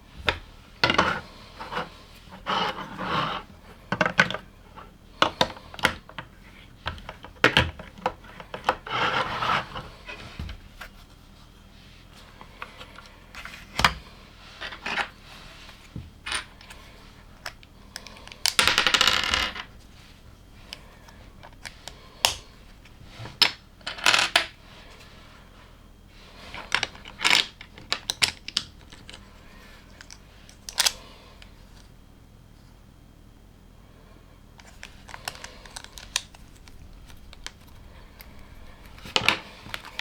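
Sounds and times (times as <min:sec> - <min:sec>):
loose plastic pieces rattling: 0:34.6 - 0:40.0.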